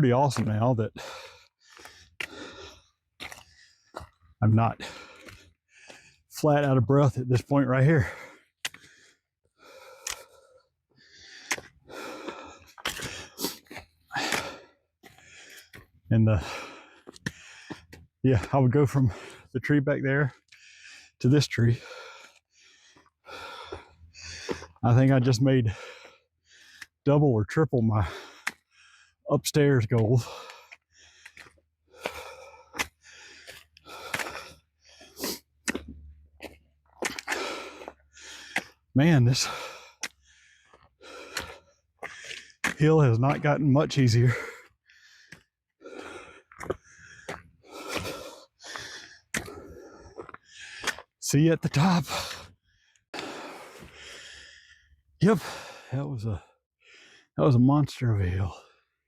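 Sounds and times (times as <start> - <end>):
man breathing hard: 0.9 - 6.3, 8.0 - 18.1, 20.3 - 24.8, 25.7 - 27.0, 28.0 - 29.3, 30.2 - 36.1, 37.0 - 42.7, 44.2 - 51.2, 52.0 - 57.4.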